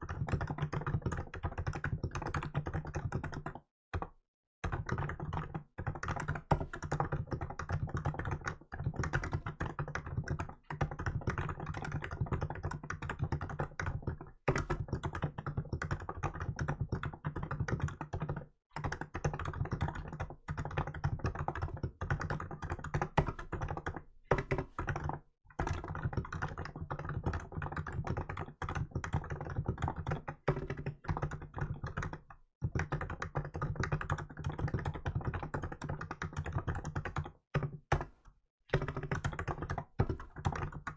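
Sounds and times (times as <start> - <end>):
soft keyboard typing: 0.0 - 40.9.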